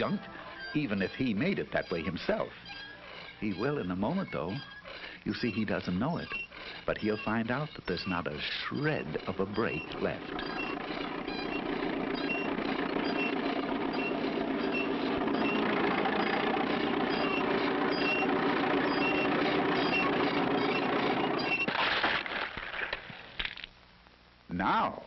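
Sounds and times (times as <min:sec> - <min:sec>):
engine-like drone: 0:00.0 - 0:21.8
short high beeps: 0:08.8 - 0:21.7.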